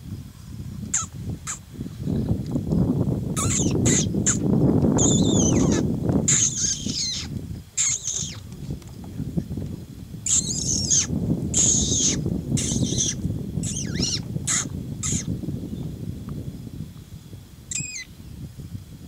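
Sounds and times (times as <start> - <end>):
bird harsh high calls: 0.9 - 1.6, 3.4 - 8.4, 10.2 - 15.3, 17.7 - 18.1.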